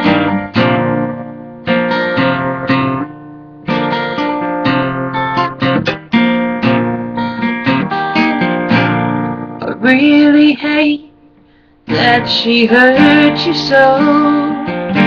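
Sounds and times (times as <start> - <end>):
acoustic guitar strumming: 0.0 - 15.0
person singing folk song: 9.5 - 15.0.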